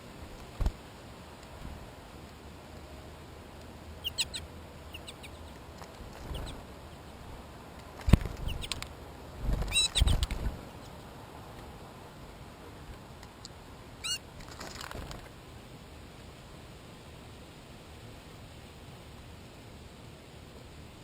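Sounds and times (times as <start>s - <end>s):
animal high chirping calls: 4.0s - 5.6s, 6.2s - 7.2s, 8.4s - 8.8s, 9.7s - 11.1s, 14.0s - 14.2s.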